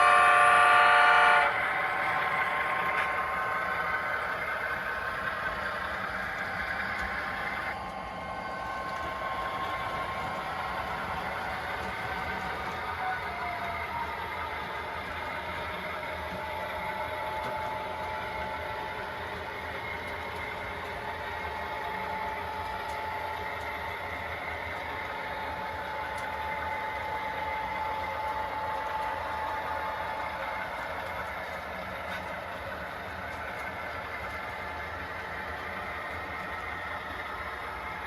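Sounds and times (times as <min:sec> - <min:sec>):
diesel engine through small speaker: 0:00.0 - 0:07.7.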